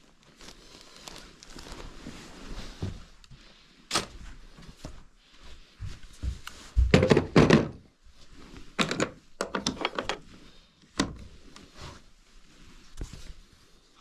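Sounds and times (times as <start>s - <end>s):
knocks and clatter of renovation: 6.8s - 7.9s.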